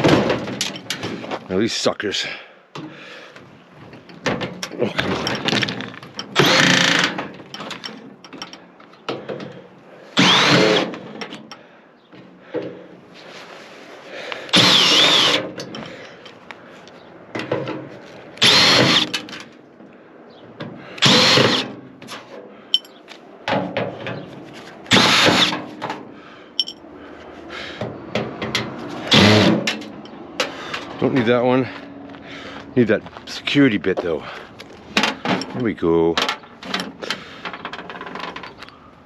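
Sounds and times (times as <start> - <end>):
handling clatter: 3.8 - 9.6, 22.1 - 24.9, 26.6 - 26.9
cordless drill whining: 6.4 - 7.1, 10.2 - 11.1, 14.5 - 15.5, 18.4 - 19.2, 21.0 - 21.7.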